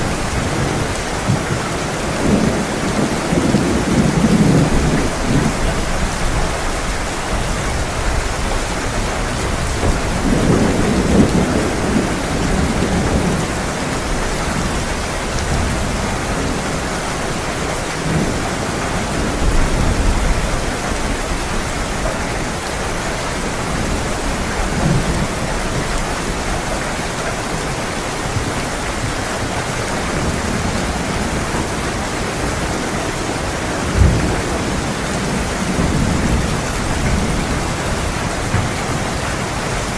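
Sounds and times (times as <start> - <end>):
thunder rolling: 0.0 - 27.1
heavy rain pouring: 0.0 - 39.9.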